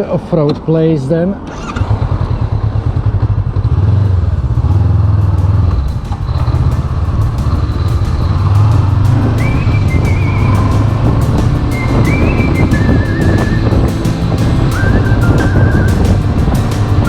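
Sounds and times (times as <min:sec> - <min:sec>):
motorcycle engine running: 0:01.5 - 0:17.0
thin wavering high tones: 0:05.7 - 0:17.0.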